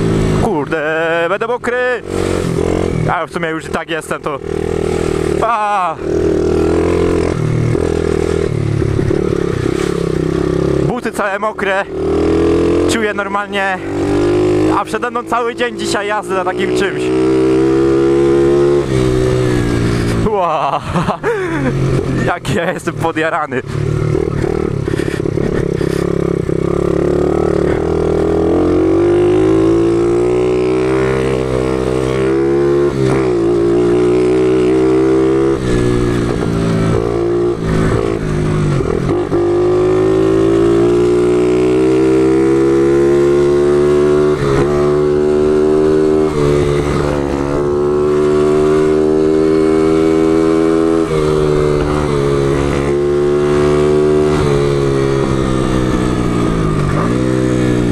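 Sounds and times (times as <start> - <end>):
small motorcycle engine revving: 0.0 - 0.6, 4.4 - 10.9, 11.9 - 13.0, 13.8 - 20.2, 23.7 - 57.9.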